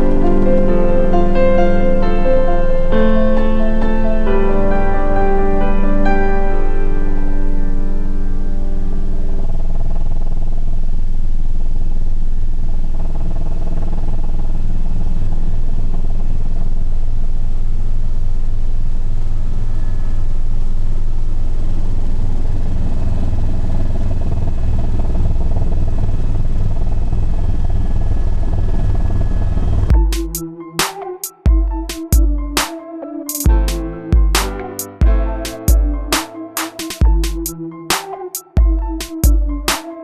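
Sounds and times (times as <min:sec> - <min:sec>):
electronic music with heavy beat: 0:29.9 - 0:40.0.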